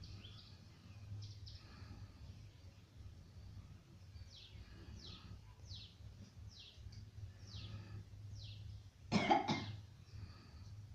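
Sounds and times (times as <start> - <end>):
bird chirping: 0.0 - 2.8, 4.1 - 8.9
steady low hum: 0.0 - 10.9.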